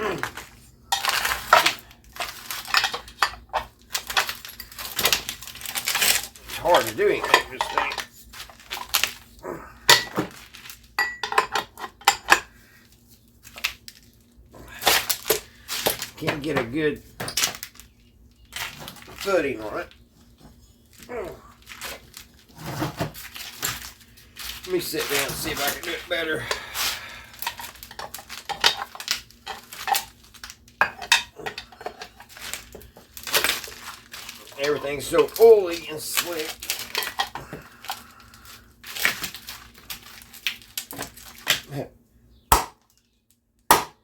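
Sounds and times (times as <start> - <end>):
metal tools clanking on engine parts: 0.9 - 5.2, 5.8 - 8.1, 11.0 - 12.5, 27.4 - 30.2, 30.8 - 32.7, 34.4 - 37.4.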